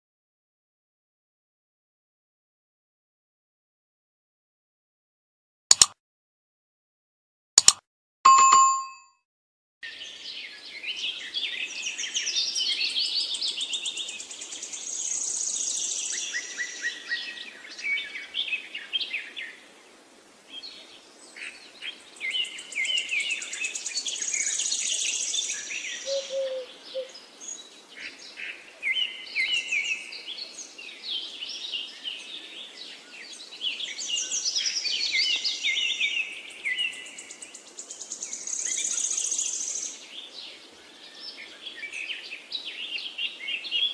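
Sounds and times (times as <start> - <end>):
birds singing and chirping: 20.6 - 43.9.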